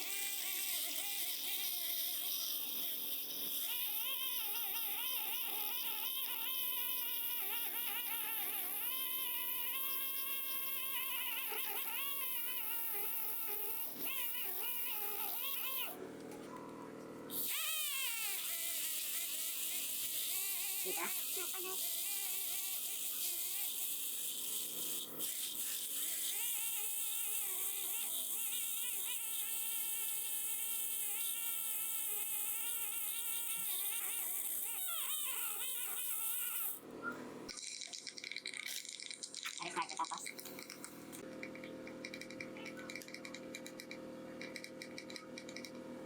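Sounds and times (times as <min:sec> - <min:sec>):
dental drill whine: 0:00.0 - 0:16.0, 0:17.3 - 0:36.8.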